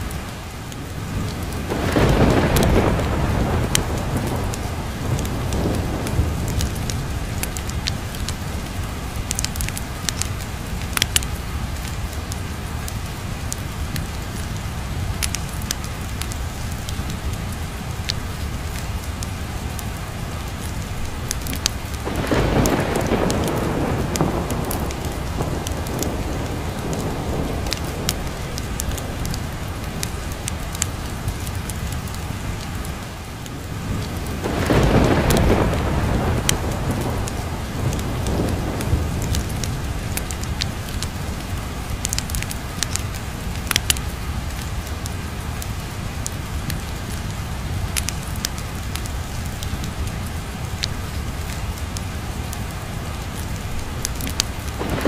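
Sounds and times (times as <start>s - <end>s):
steady rain: 0.0s - 55.0s
thunder rolling: 1.1s - 8.7s, 21.4s - 31.2s, 33.7s - 42.9s, 54.1s - 55.0s.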